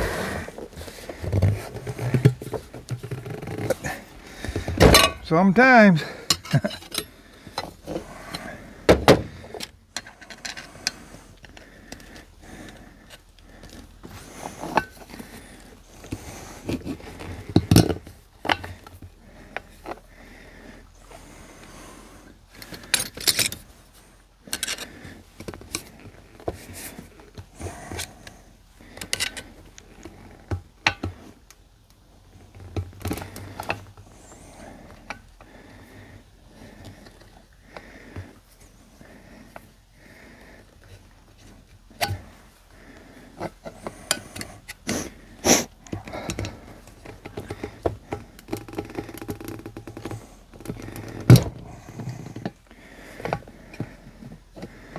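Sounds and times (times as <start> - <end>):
hand tools clinking on metal: 4.8 - 5.4.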